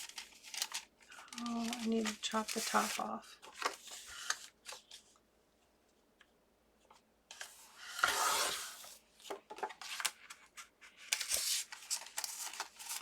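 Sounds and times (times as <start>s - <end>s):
paper clicks and rustles: 0.0s - 5.2s, 9.2s - 13.0s.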